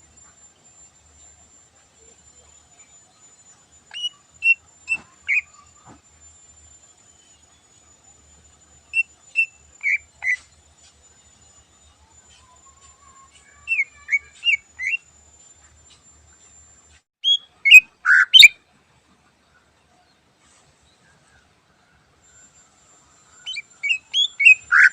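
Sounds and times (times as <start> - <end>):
bird singing whistled notes: 2.7 - 5.9, 7.0 - 15.1, 17.2 - 18.6, 22.3 - 24.9.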